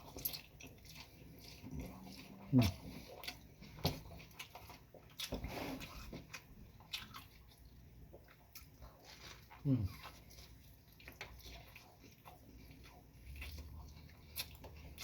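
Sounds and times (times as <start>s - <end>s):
slurping: 0.0s - 6.4s
wet chewing: 0.0s - 15.0s.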